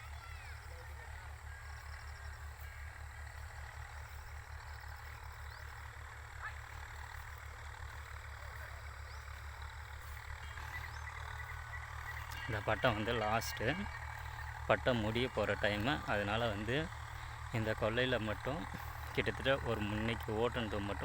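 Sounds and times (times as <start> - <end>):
tractor diesel engine rumbling: 0.0 - 21.0.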